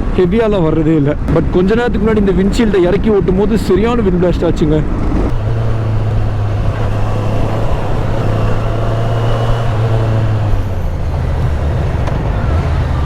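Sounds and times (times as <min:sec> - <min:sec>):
wind rushing: 0:01.2 - 0:13.0
motorcycle engine running: 0:05.0 - 0:13.0.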